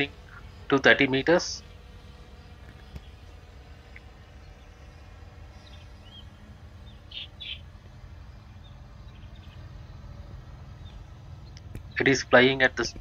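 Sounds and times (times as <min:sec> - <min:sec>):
low outdoor rumble: 0:00.0 - 0:13.0
bird chirps: 0:01.6 - 0:12.4.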